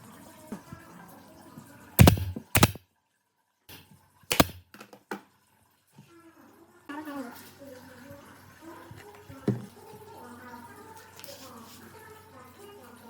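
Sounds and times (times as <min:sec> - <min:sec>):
sharp knocks: 0:02.0 - 0:02.8, 0:03.7 - 0:04.6.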